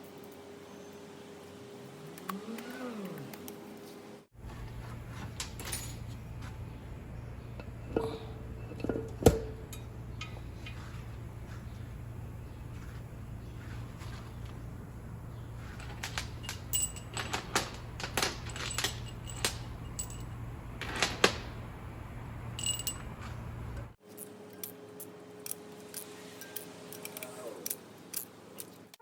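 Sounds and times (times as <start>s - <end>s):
steady low hum: 0.0s - 24.0s
metal parts clinking and clicking: 4.7s - 6.2s, 12.6s - 21.9s, 22.5s - 29.0s.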